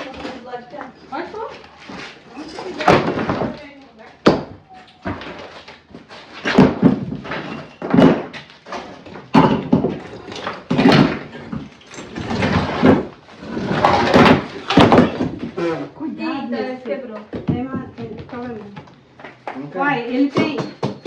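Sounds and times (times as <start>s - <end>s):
bricks knocked loose with heavy thuds: 2.7s - 3.6s, 4.2s - 5.5s, 6.4s - 15.6s.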